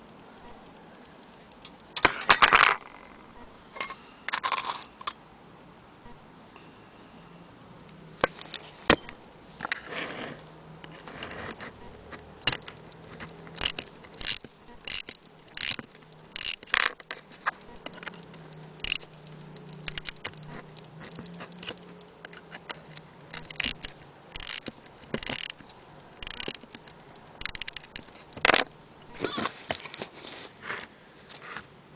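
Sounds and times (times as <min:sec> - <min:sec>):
metal clock clicking and clinking: 0:12.4 - 0:29.2.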